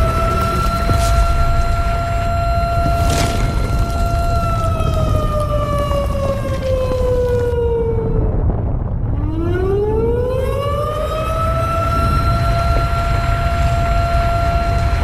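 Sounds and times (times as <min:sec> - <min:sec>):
low rumbling: 0:00.0 - 0:15.0
siren wailing: 0:00.0 - 0:15.0.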